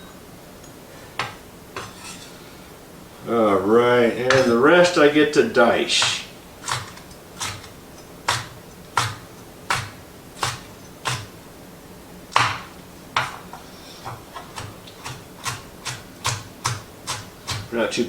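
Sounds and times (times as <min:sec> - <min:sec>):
knife chopping on cutting board: 0:06.0 - 0:07.7, 0:08.3 - 0:11.3, 0:12.4 - 0:17.7.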